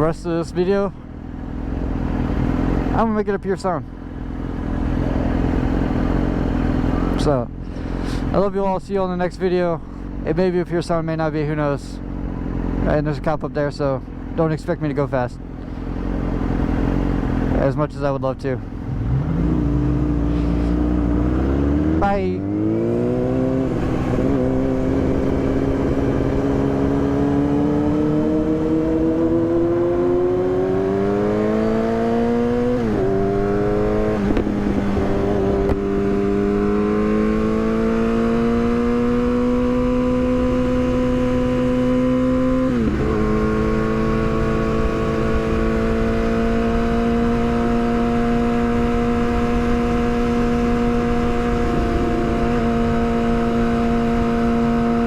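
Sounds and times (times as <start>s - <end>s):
motorcycle engine revving: 1.0s - 3.0s, 3.8s - 8.3s, 15.4s - 17.7s, 18.4s - 55.0s
wind buffeting microphone: 32.4s - 36.8s, 50.4s - 53.2s.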